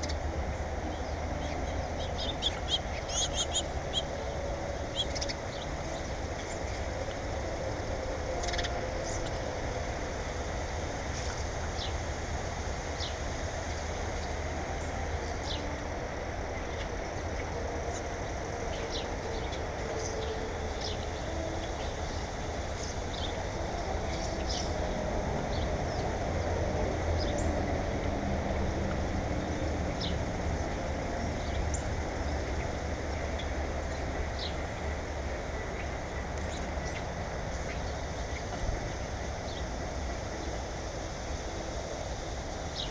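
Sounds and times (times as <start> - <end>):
small birds chirping: 0.8 - 6.9, 16.6 - 26.2.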